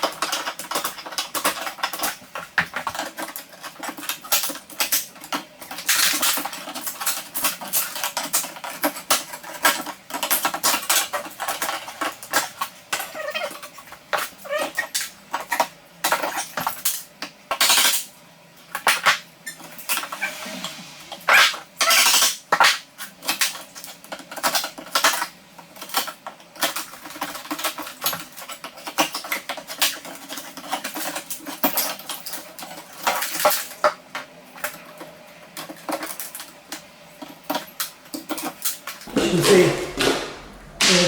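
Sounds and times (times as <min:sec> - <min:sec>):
knocks and scrapes on wood: 0:39.1 - 0:41.0.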